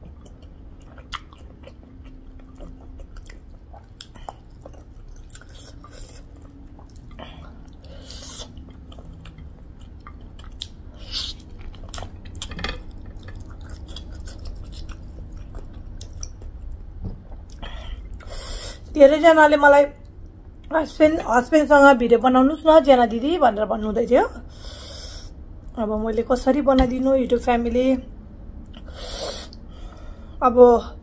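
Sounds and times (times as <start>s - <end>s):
person chewing with wet smacks: 0.0s - 18.3s, 28.6s - 28.9s.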